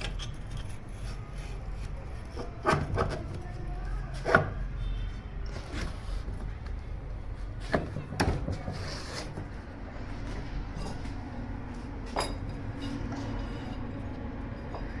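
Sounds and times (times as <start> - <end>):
hard parts knocking and clinking: 0.0 - 1.2, 12.0 - 15.0
steady low hum: 0.0 - 15.0.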